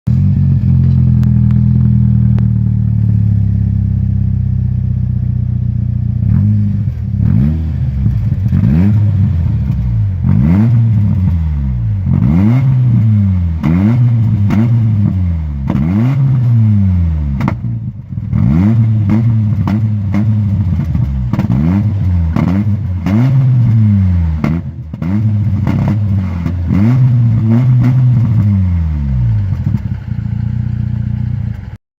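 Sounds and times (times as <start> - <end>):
car engine idling: 0.1 - 15.8, 16.6 - 31.8
engine revving in blips: 6.2 - 30.0.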